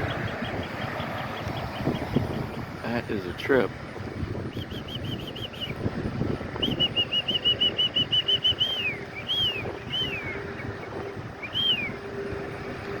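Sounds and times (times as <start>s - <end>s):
songbird whistling: 4.5s - 5.8s, 6.5s - 12.0s.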